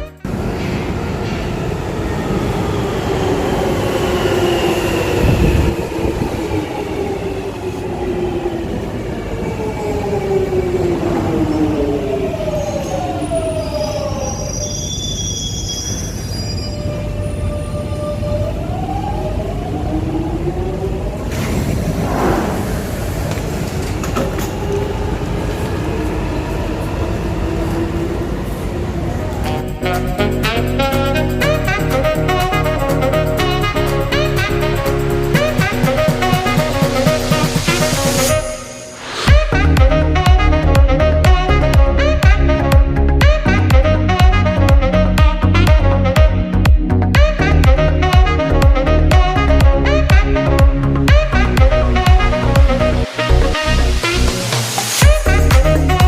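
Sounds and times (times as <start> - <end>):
train rumbling: 0.0 - 56.0
train wheels rumbling on track: 0.2 - 13.7, 21.0 - 30.9.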